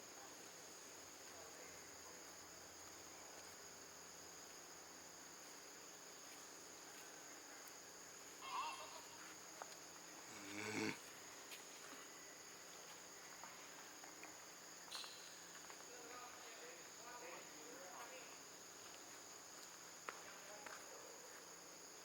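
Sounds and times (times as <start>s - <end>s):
night insects chorus: 0.0s - 22.0s
short loud calls: 8.4s - 9.2s.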